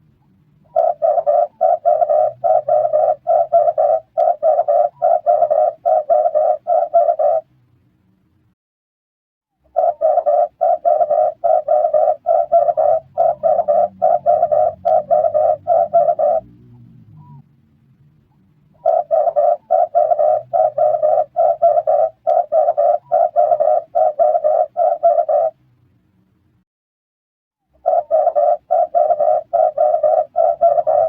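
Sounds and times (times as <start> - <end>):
dove cooing: 0.6 - 7.5, 9.7 - 17.4, 18.8 - 25.6, 27.8 - 31.0.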